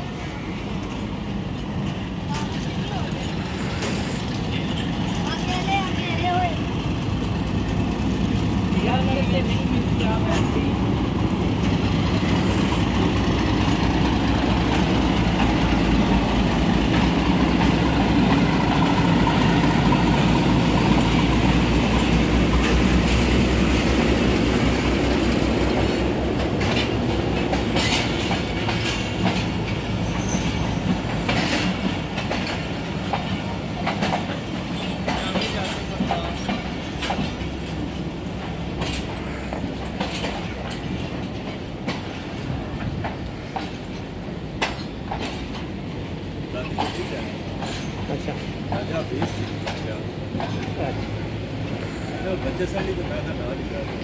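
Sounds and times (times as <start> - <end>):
diesel locomotive engine rumble: 0.0 - 54.0
train wheels clacking over rail joints: 0.7 - 54.0.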